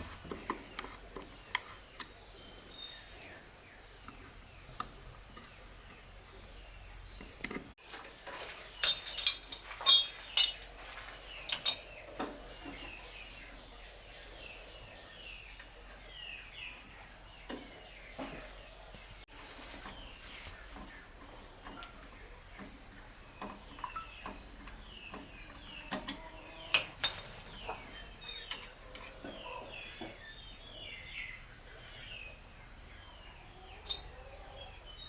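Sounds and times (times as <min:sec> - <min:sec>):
sharp clicks and clinks: 0:08.8 - 0:10.8
faint bird chirps: 0:23.4 - 0:26.8, 0:27.6 - 0:35.0.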